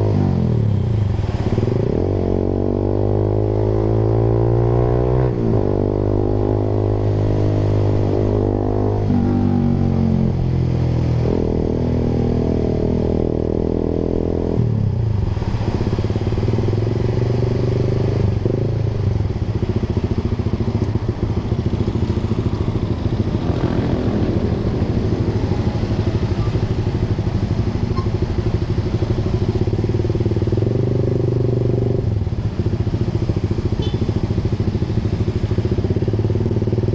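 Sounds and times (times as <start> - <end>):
motorcycle engine running: 15.9 - 36.9.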